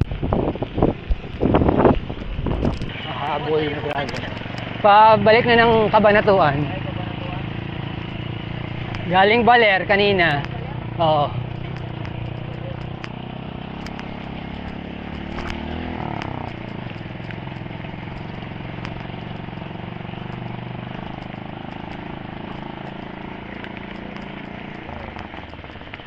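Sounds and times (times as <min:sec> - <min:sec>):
vehicle engine running: 0:00.0 - 0:26.0
light ticks: 0:11.5 - 0:26.0.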